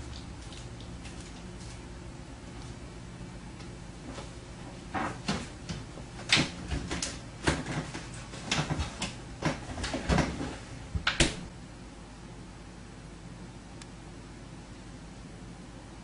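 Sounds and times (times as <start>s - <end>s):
low steady hum: 0.0s - 16.0s
refrigerator door and shelves knocking: 4.9s - 11.5s.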